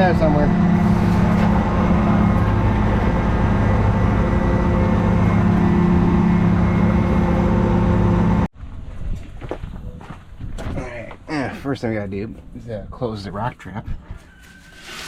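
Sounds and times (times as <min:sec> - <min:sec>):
heavy diesel engine running: 0:00.0 - 0:08.5.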